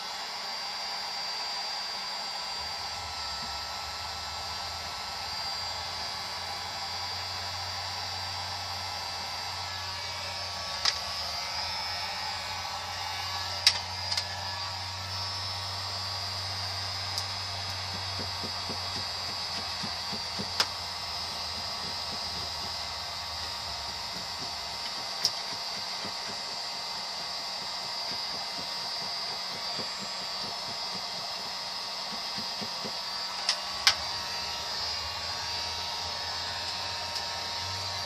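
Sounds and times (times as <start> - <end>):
heat gun humming: 0.0 - 38.0.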